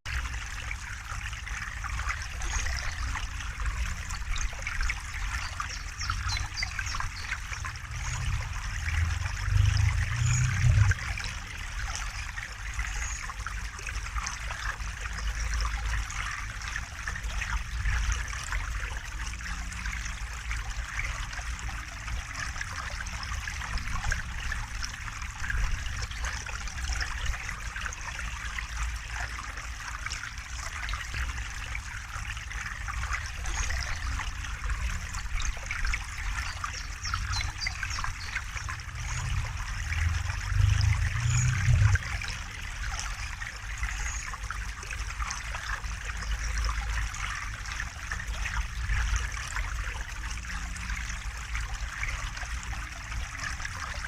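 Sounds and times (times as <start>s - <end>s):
river water flowing: 0.1s - 54.0s
deep low rumble: 7.7s - 11.4s, 38.7s - 42.6s.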